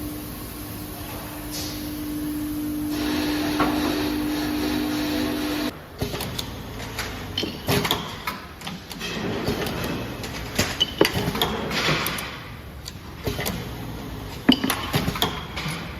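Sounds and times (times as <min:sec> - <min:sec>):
low machinery hum: 0:00.0 - 0:05.9
clicks and clatter of parts: 0:06.0 - 0:13.6.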